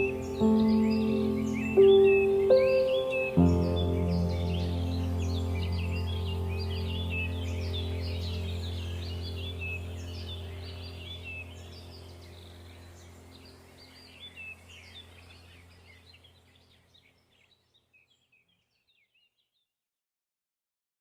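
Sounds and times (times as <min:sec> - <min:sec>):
low drone: 0:00.0 - 0:16.2
small birds chirping: 0:00.0 - 0:19.7.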